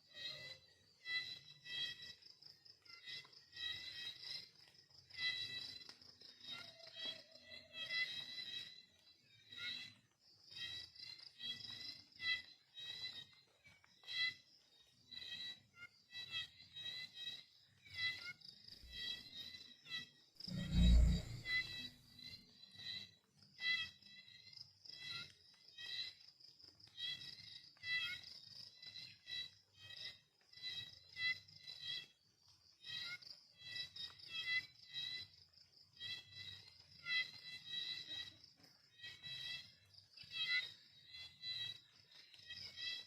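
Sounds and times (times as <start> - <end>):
crickets chirping: 20.5 - 21.9.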